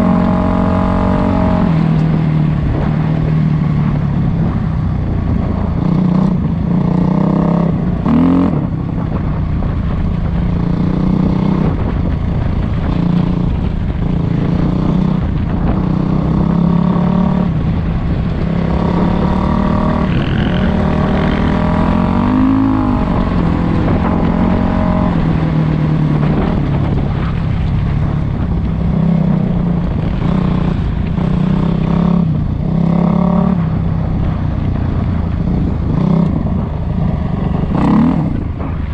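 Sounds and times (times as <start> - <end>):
dirt bike engine revving: 0.0 - 2.1, 14.4 - 26.7, 35.6 - 38.7.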